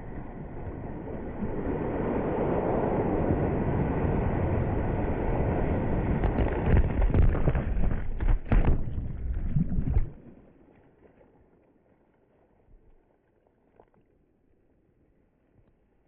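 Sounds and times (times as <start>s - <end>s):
wind buffeting microphone: 0.0s - 10.2s
irregular thumps: 6.2s - 10.2s.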